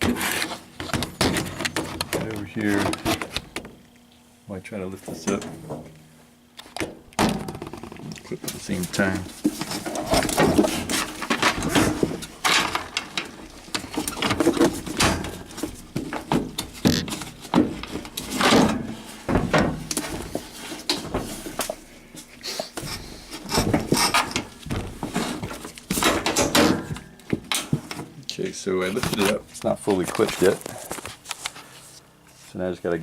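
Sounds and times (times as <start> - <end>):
clattering and knocks: 9.4 - 21.8, 22.9 - 28.1.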